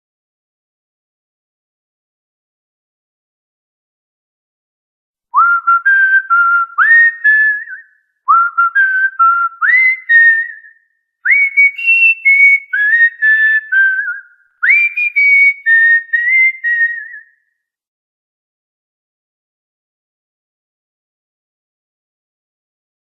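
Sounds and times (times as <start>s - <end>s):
cockatiel whistling a tune: 5.4s - 17.3s.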